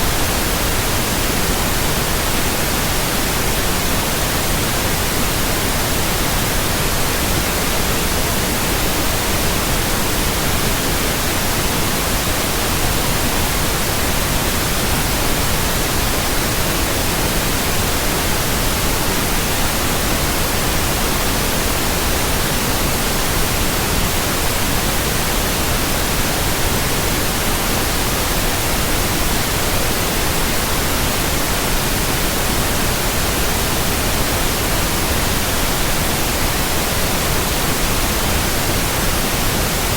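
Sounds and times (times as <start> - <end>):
synthetic white noise hiss: 0.0 - 39.9.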